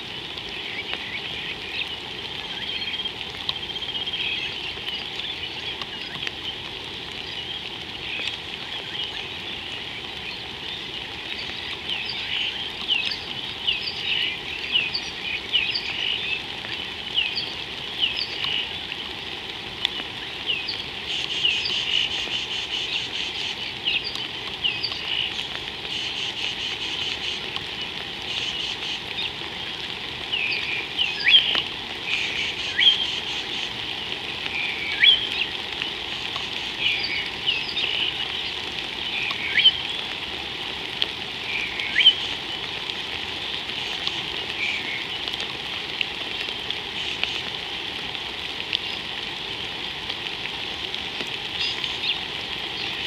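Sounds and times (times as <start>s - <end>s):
steady background hiss: 0.0s - 53.0s
birds chirping: 19.9s - 40.2s.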